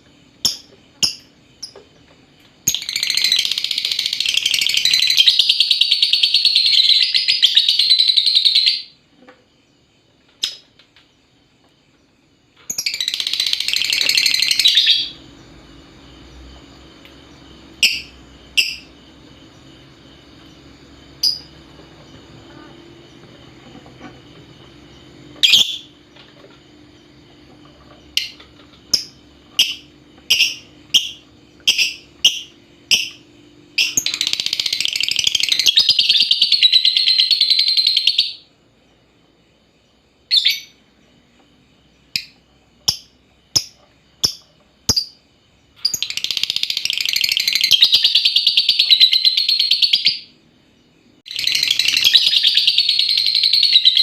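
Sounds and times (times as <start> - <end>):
lovebird chirping and chattering: 2.6 - 9.0, 12.7 - 15.3, 17.7 - 19.0, 21.1 - 21.6, 24.9 - 26.0, 28.0 - 38.4, 45.8 - 50.3, 51.3 - 54.0.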